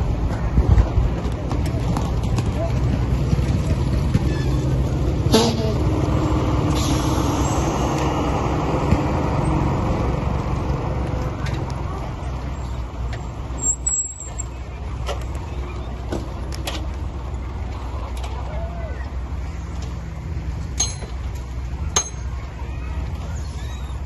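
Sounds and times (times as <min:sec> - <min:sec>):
diesel machinery rumbling: 0:00.0 - 0:24.0
hiss: 0:06.7 - 0:08.0.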